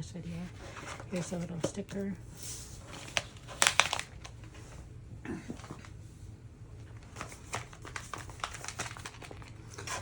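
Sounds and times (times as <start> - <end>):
packaging rustling: 2.6 - 4.6, 6.9 - 10.0.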